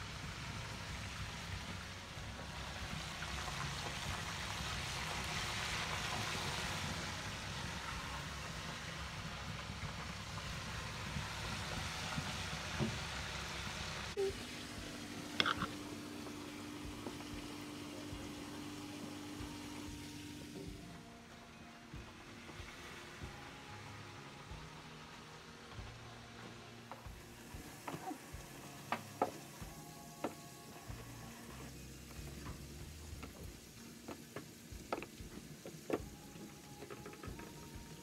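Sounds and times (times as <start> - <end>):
food sizzling over fire: 0.0 - 21.0, 21.9 - 38.0
steady low hum: 14.1 - 25.0
burning wood crackling: 26.8 - 38.0.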